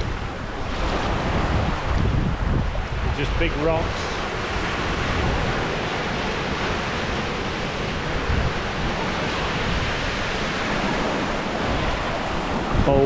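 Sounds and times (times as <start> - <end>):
surf washing onto rocky shore: 0.0 - 13.0
wind buffeting microphone: 0.0 - 13.0.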